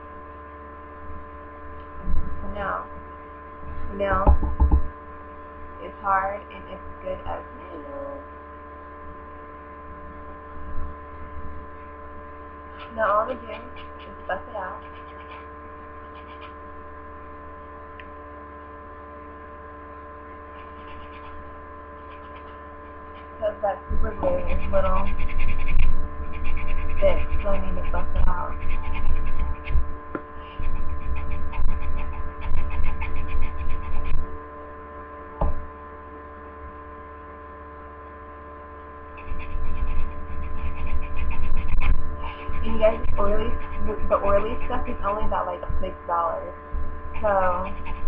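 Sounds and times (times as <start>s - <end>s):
electrical hum: 0.0s - 48.0s
nail buffer rubbing fingernail: 14.8s - 15.4s, 16.1s - 16.6s, 20.6s - 21.4s, 24.2s - 29.8s, 30.4s - 34.2s, 39.2s - 45.2s, 47.2s - 48.0s.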